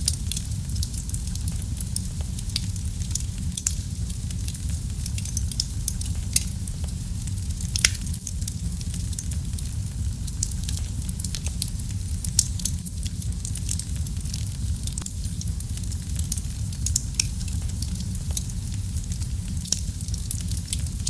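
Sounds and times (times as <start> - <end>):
low rumble of flames: 0.0 - 21.0
wood fire crackling: 0.0 - 21.0.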